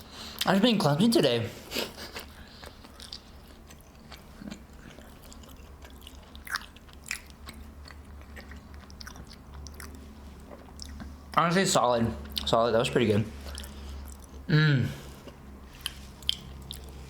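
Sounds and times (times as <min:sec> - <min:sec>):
person chewing food: 0:01.7 - 0:11.4, 0:13.4 - 0:14.5, 0:15.1 - 0:17.0.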